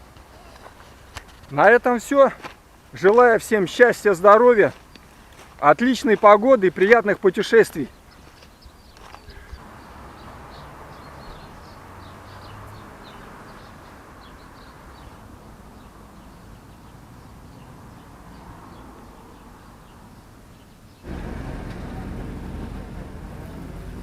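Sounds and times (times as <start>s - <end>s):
small birds chirping: 4.2s - 22.1s.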